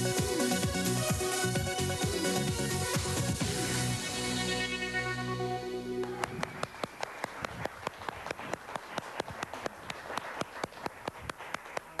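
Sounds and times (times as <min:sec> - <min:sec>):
people applauding: 0:06.0 - 0:12.0.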